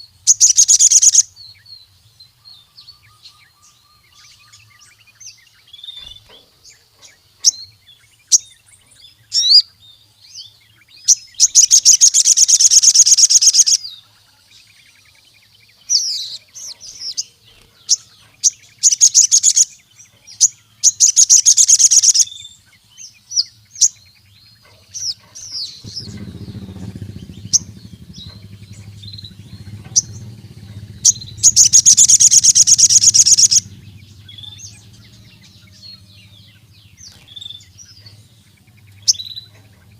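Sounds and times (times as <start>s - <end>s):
bird chirping and trilling: 0.0s - 39.9s
low steady hum: 24.6s - 39.9s.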